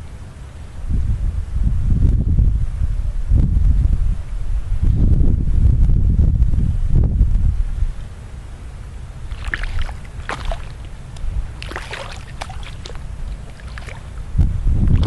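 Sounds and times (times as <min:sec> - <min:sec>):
wind rumble on microphone: 0:00.0 - 0:15.0
paddle splashing in water: 0:09.3 - 0:14.2
water dripping: 0:09.3 - 0:14.2.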